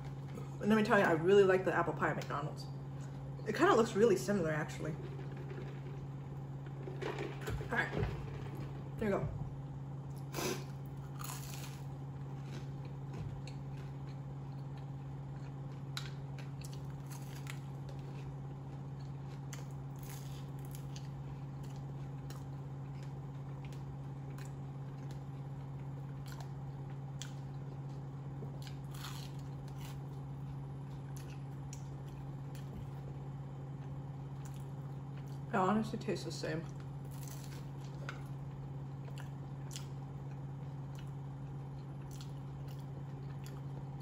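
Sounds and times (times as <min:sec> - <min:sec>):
low steady hum: 0:00.0 - 0:44.0
crunching crisp pastry: 0:10.1 - 0:35.5, 0:36.7 - 0:44.0.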